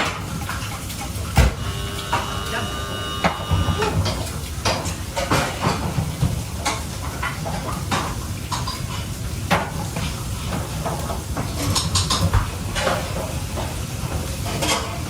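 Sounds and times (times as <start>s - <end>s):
pots and utensils clattering: 0.0s - 2.5s, 3.2s - 15.0s
steady high tone: 1.6s - 4.0s.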